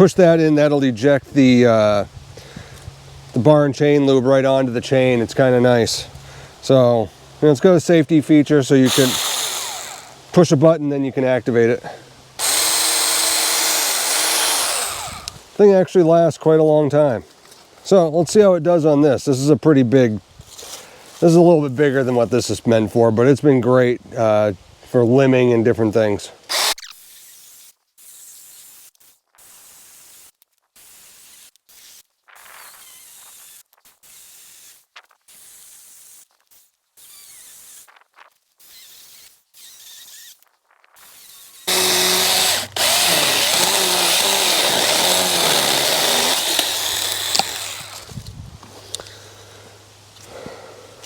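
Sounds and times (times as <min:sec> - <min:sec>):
cordless chainsaw cutting wood: 0:08.8 - 0:10.3, 0:12.4 - 0:15.4, 0:26.5 - 0:27.5, 0:32.6 - 0:34.7, 0:37.0 - 0:37.8, 0:38.6 - 0:40.3, 0:41.0 - 0:48.2.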